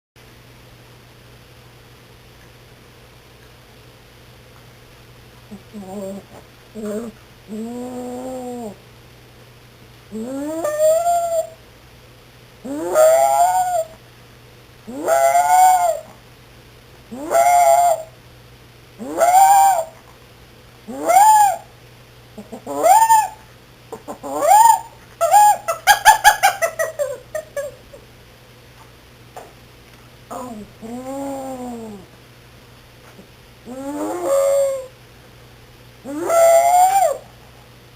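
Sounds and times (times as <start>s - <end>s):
puppy howling: 5.7s - 8.8s, 10.1s - 11.6s, 12.6s - 14.0s, 14.9s - 16.2s, 17.1s - 18.1s, 19.0s - 20.0s, 20.9s - 21.7s, 22.5s - 23.4s, 30.3s - 32.1s, 33.7s - 34.9s, 36.0s - 37.3s.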